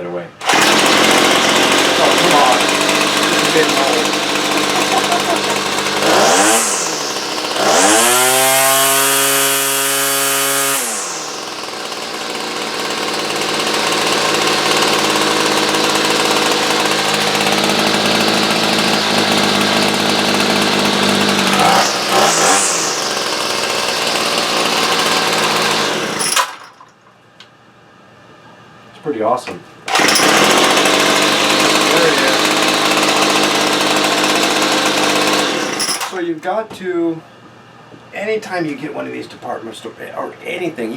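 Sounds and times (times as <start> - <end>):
chainsaw engine revving and idling: 0.4 - 26.6, 29.9 - 36.2.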